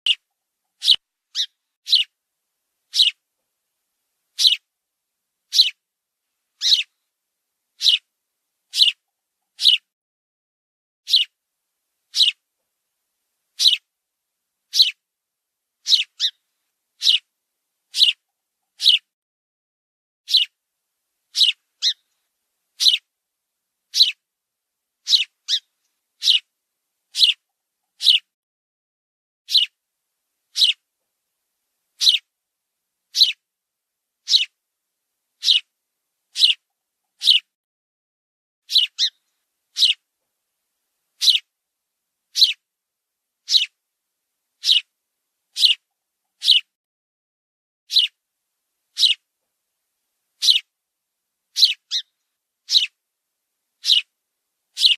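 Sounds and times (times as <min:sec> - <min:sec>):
bird chirping: 0:00.8 - 0:02.1, 0:02.9 - 0:03.2, 0:04.4 - 0:04.7, 0:05.5 - 0:05.8, 0:06.6 - 0:07.0, 0:07.8 - 0:08.1, 0:08.7 - 0:09.9, 0:11.1 - 0:11.4, 0:12.1 - 0:12.4, 0:13.6 - 0:13.9, 0:14.7 - 0:15.0, 0:15.8 - 0:17.3, 0:17.9 - 0:19.1, 0:20.3 - 0:20.6, 0:21.3 - 0:22.2, 0:22.8 - 0:23.1, 0:23.9 - 0:24.2, 0:25.0 - 0:26.5, 0:27.1 - 0:28.3, 0:29.5 - 0:29.8, 0:30.5 - 0:30.8, 0:32.0 - 0:32.3, 0:33.1 - 0:33.4, 0:34.2 - 0:34.6, 0:35.4 - 0:35.7, 0:36.3 - 0:36.6, 0:37.2 - 0:37.5, 0:38.7 - 0:40.0, 0:41.2 - 0:41.5, 0:42.3 - 0:42.6, 0:43.4 - 0:43.8, 0:44.6 - 0:44.9, 0:45.5 - 0:46.7, 0:47.9 - 0:48.2, 0:48.9 - 0:49.2, 0:50.4 - 0:50.7, 0:51.5 - 0:53.0, 0:53.8 - 0:54.1.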